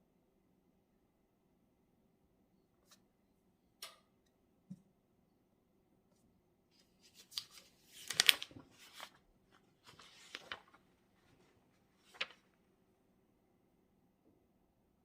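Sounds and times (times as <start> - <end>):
paper rustling and scraping: 6.8 - 12.6.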